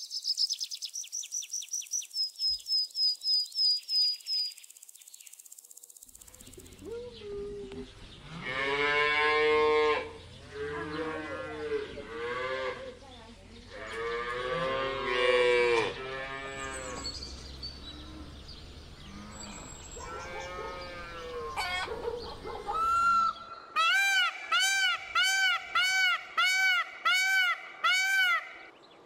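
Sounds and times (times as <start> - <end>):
peacock call: 19.7 - 28.7.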